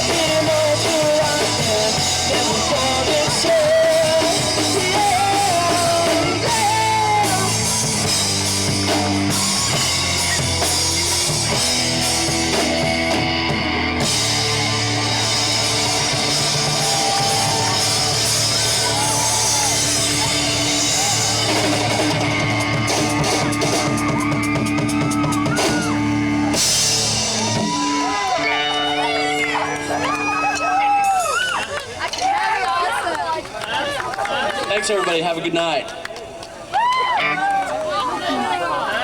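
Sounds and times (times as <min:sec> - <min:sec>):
rock band playing live: 0:00.0 - 0:32.0
wavering melodic line: 0:27.9 - 0:31.4.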